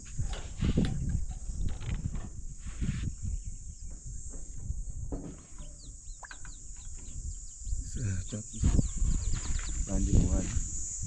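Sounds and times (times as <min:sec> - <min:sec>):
birds chirping: 0:03.2 - 0:11.0
low knocks: 0:03.8 - 0:07.2.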